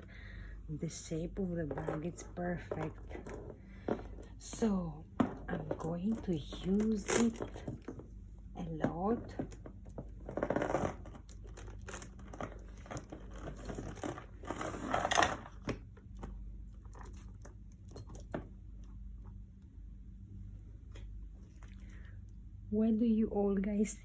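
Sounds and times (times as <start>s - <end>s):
faint metallic jingling: 1.4s - 7.9s.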